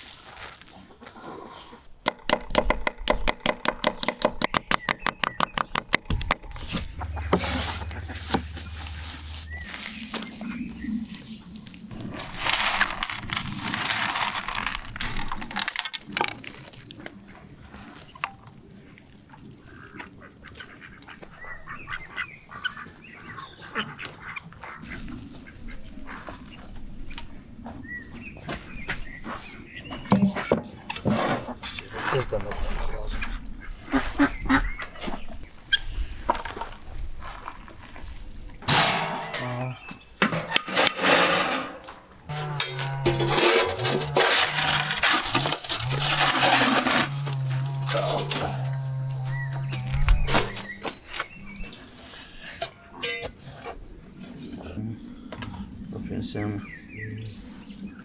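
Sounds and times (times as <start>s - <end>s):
birds calling: 2.6s - 13.8s, 19.6s - 31.0s, 31.6s - 35.9s, 42.2s - 53.4s.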